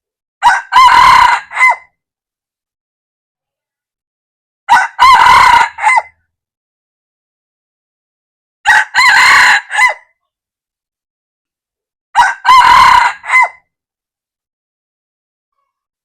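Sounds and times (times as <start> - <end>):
rooster crowing: 0.4 - 1.9, 4.7 - 6.1, 8.6 - 10.1, 12.2 - 13.6.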